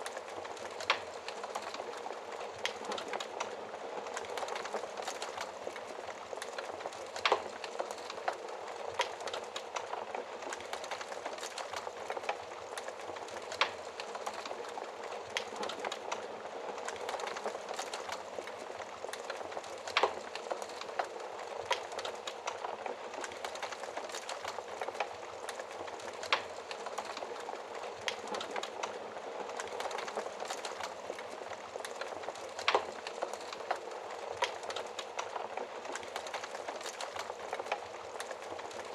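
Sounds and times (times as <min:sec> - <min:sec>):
fire popping: 0:00.0 - 0:38.9
wood fire crackling: 0:00.0 - 0:38.9.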